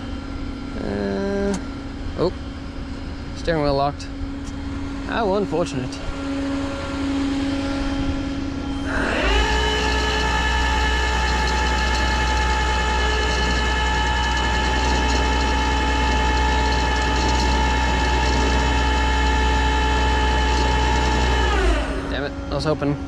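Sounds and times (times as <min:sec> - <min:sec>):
hydraulics whining: 0:00.0 - 0:23.0
truck engine at raised revs: 0:04.4 - 0:22.9.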